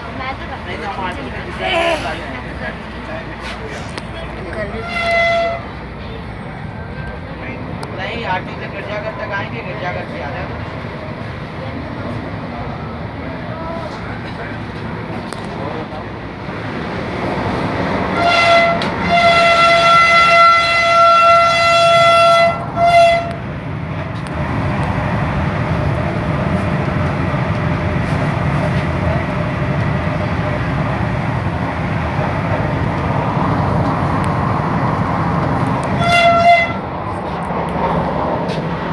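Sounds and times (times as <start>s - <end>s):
running train rumble: 0.0s - 38.9s
train horn blast: 4.6s - 5.9s, 18.1s - 23.5s, 35.6s - 37.4s.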